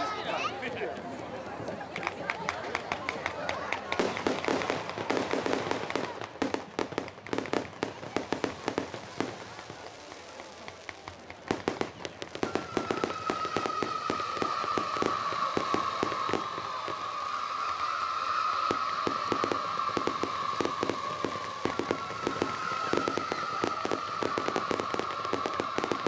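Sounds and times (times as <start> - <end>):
fireworks popping and banging: 1.0 - 26.0
long steady whistle: 12.2 - 26.0.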